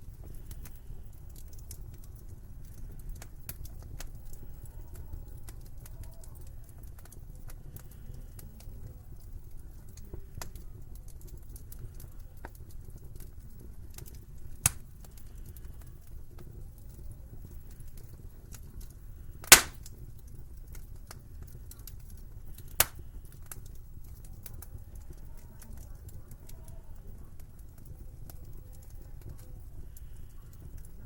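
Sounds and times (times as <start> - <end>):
low rumble of fire: 0.0 - 31.0
wood fire crackling: 0.0 - 31.0
loud sharp pop: 19.5 - 19.8.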